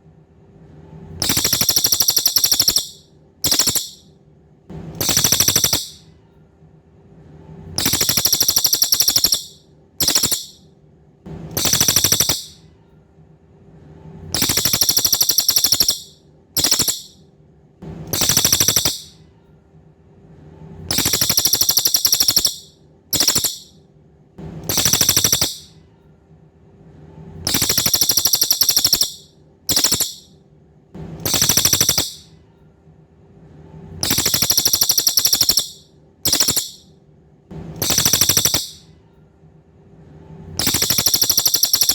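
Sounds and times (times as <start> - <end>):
songbird buzzy trills: 1.2 - 4.0, 5.0 - 6.0, 7.8 - 10.6, 11.5 - 12.6, 14.4 - 17.2, 18.1 - 19.2, 20.9 - 23.7, 24.7 - 25.7, 27.5 - 30.3, 31.2 - 32.3, 34.0 - 36.8, 37.8 - 38.8, 40.6 - 41.9.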